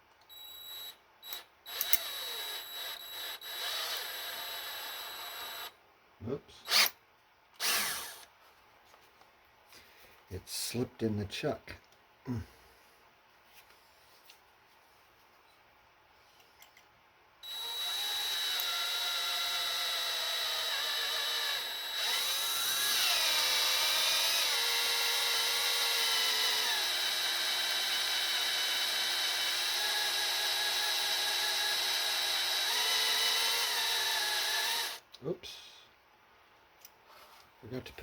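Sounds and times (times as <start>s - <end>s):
electric drill whining: 0.3s - 5.8s, 6.7s - 6.9s, 7.6s - 8.3s, 17.4s - 35.0s.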